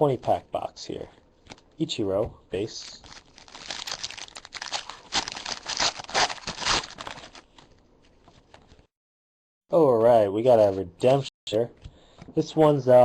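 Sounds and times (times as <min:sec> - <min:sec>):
foil wrapper tearing and crinkling: 0:03.0 - 0:07.4.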